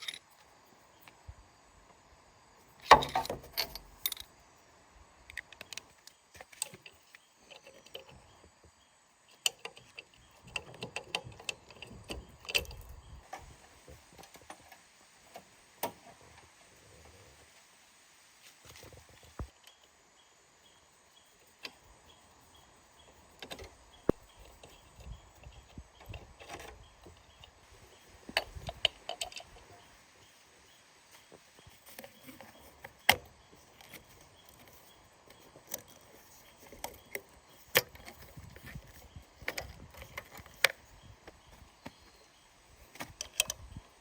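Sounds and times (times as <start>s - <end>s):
sharp clicks and knocks: 2.8s - 4.3s, 23.0s - 29.8s, 42.8s - 43.8s.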